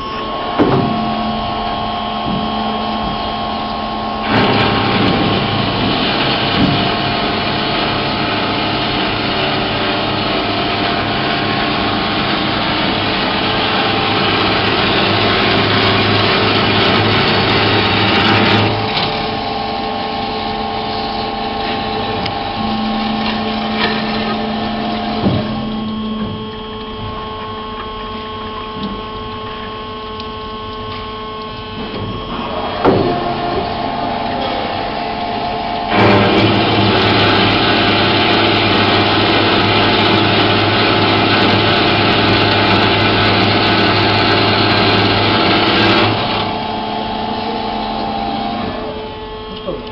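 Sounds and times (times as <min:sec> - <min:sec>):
band saw whining: 0:00.0 - 0:49.9
knocks: 0:00.6 - 0:01.2.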